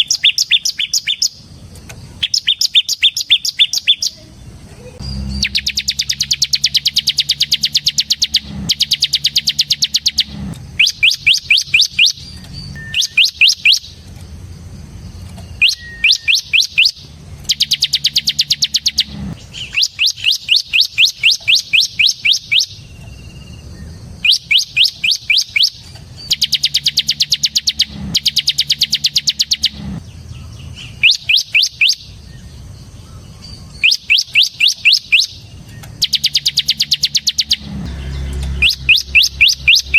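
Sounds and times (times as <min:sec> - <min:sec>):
bird singing fast trill: 0:00.0 - 0:01.5, 0:02.1 - 0:39.9
low steady hum: 0:25.7 - 0:31.0, 0:35.3 - 0:39.9.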